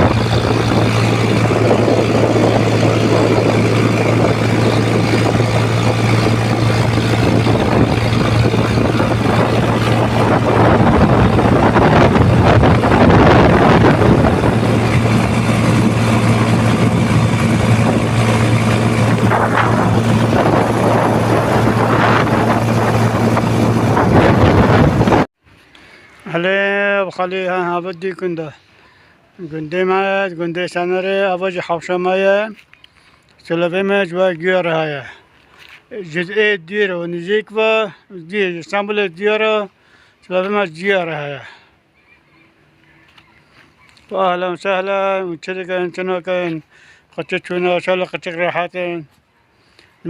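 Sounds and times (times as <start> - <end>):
broad rushing noise: 0.0 - 25.3
higher steady hum: 0.0 - 25.3
low motor drone: 0.0 - 25.3.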